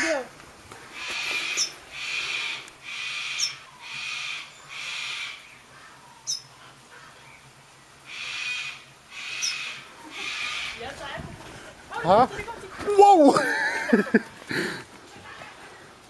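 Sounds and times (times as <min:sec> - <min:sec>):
bird rasping calls: 0:00.9 - 0:07.2, 0:08.0 - 0:11.0.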